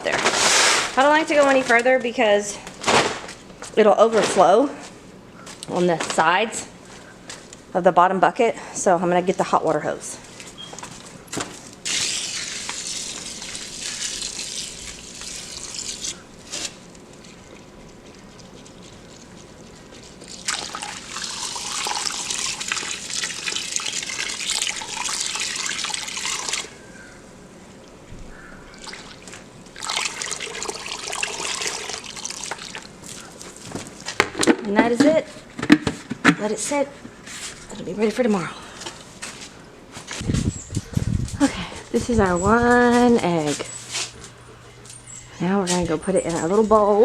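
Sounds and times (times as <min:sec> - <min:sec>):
water from hose running into bucket: 0:11.8 - 0:26.7, 0:28.8 - 0:34.2.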